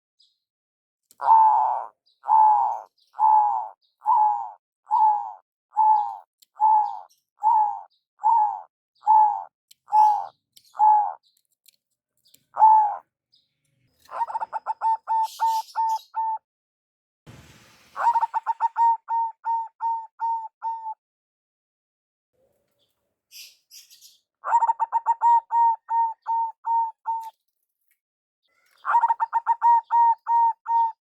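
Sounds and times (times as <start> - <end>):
dove cooing: 1.2 - 11.2, 12.6 - 13.0, 14.1 - 16.4, 18.0 - 21.0, 24.5 - 27.3, 28.8 - 31.0.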